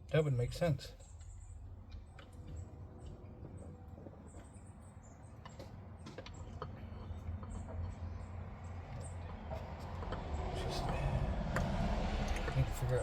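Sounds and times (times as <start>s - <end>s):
steady low rumble: 6.8s - 13.0s.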